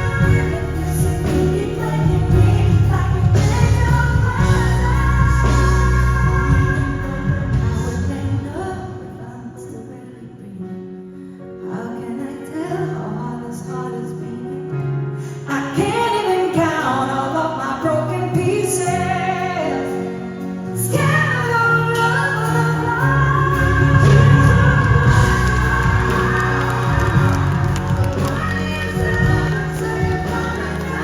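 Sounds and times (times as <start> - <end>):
live band playing: 0.0 - 8.5, 18.3 - 31.0
woman singing pop ballad: 0.0 - 31.0.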